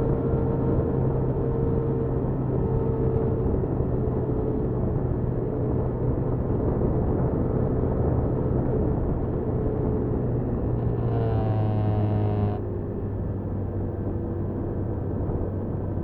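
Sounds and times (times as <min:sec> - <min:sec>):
small motorcycle engine running: 0:10.6 - 0:12.6.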